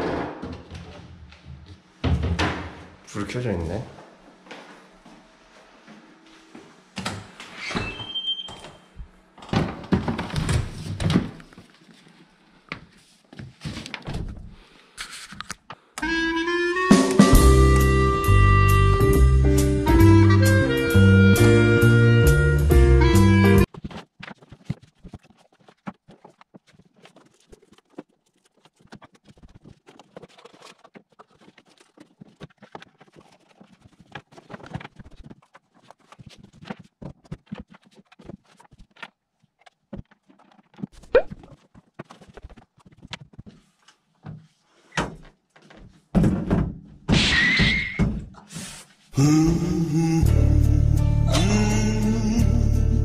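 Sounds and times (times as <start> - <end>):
shuffling and scraping: 10.3 - 15.8, 23.6 - 46.1.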